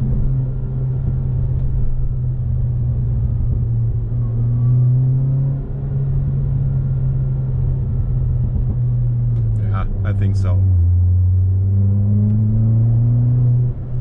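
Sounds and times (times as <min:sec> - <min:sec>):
car engine drone from cabin: 0:00.0 - 0:14.0.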